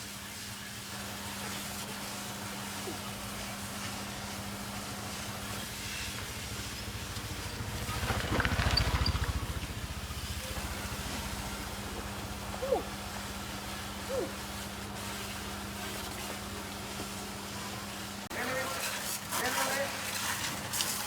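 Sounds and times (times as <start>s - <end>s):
motor humming: 3.0s - 15.9s.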